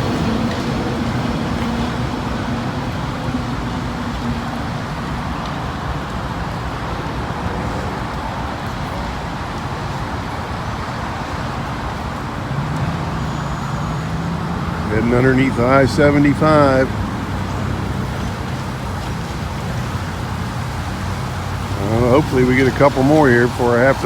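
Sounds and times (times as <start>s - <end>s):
low train hum: 0.0s - 8.6s
road traffic noise: 0.0s - 24.0s.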